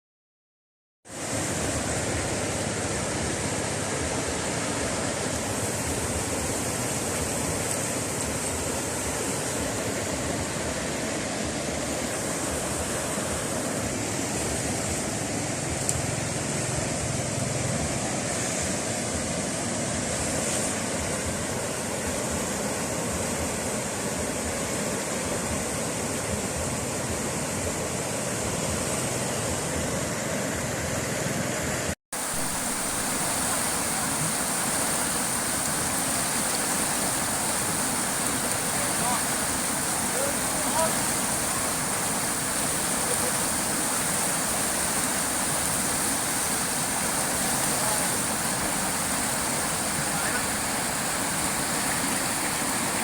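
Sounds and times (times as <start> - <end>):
steady rushing noise: 1.1 - 53.0
faint high hiss: 32.2 - 53.0.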